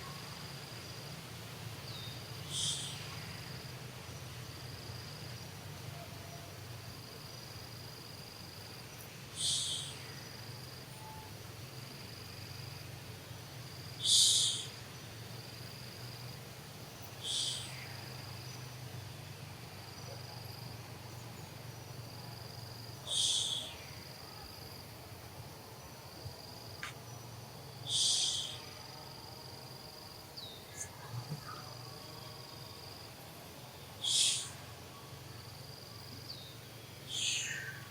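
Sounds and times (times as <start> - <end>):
insects chirring: 0.0 - 37.9
harsh insect buzzes: 14.0 - 14.8, 27.8 - 28.8, 34.0 - 34.8.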